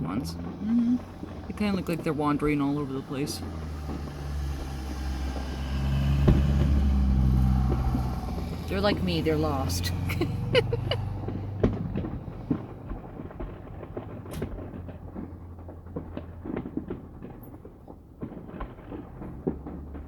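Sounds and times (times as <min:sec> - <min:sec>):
low steady hum: 0:00.0 - 0:02.9
distant fireworks bangs and crackles: 0:00.0 - 0:20.0.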